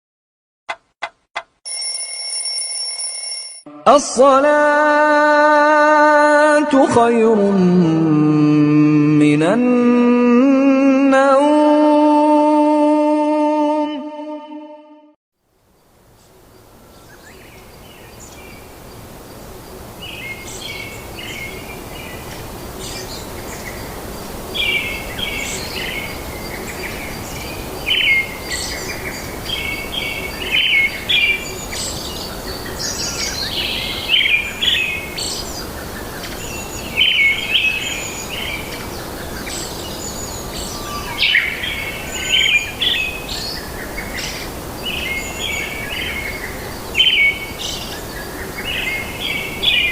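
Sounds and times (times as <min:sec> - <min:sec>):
steady background hiss: 0:15.4 - 0:49.9
small birds chirping: 0:15.8 - 0:49.9.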